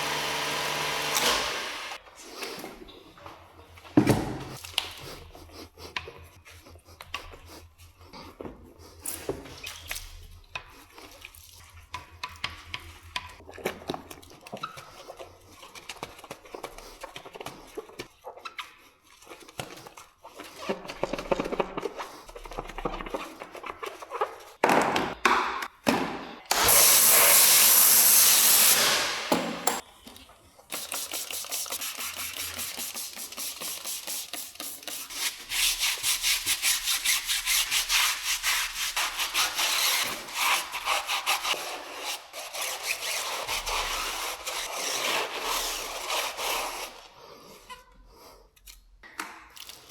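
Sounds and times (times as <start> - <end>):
brush scrubbing: 5.0 - 13.5, 30.4 - 47.6
knocks and handling noises: 22.6 - 26.5.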